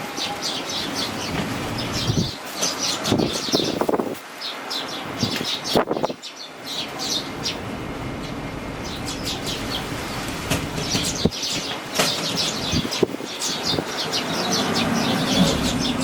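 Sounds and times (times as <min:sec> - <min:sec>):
fledgling sparrows chirping: 0:00.0 - 0:16.0
strong wind rushing: 0:01.2 - 0:02.4, 0:03.0 - 0:04.2, 0:05.1 - 0:06.2, 0:07.3 - 0:11.7, 0:12.4 - 0:16.0.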